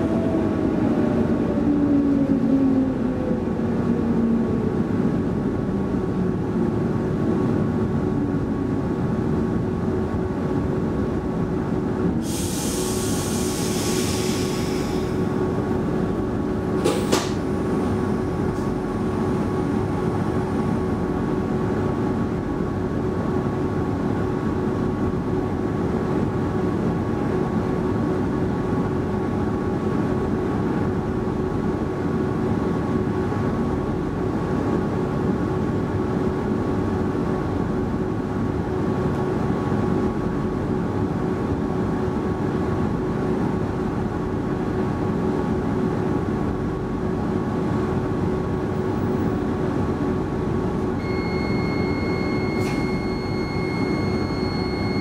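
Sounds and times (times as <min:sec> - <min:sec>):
train equipment hum: 0:00.0 - 0:55.0
sharp click: 0:16.8 - 0:17.4.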